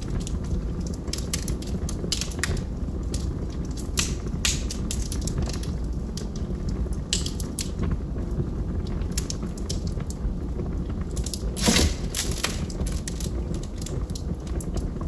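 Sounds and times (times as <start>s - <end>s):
fire rumbling: 0.0s - 15.0s
wood popping and snapping: 0.1s - 6.4s, 7.1s - 7.8s, 11.1s - 14.4s.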